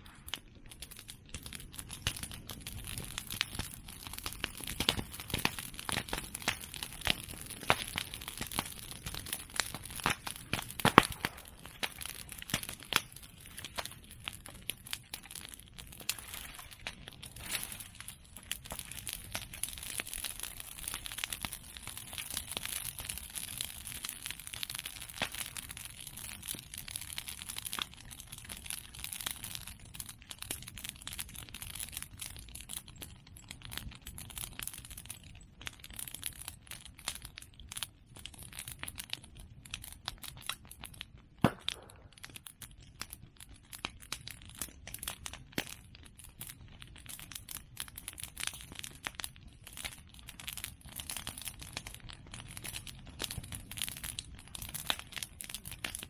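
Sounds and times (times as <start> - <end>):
bonfire crackling: 0.0 - 56.0
fire hiss: 4.3 - 14.5.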